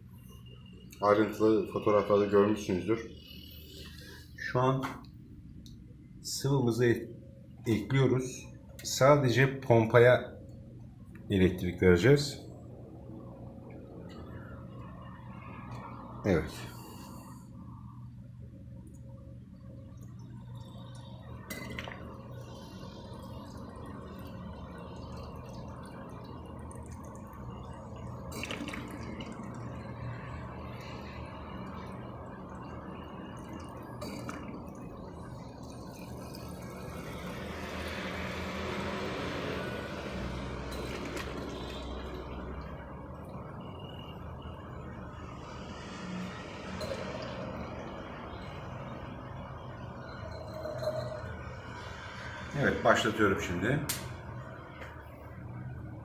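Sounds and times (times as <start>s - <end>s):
water trickling and splashing: 19.9s - 53.0s.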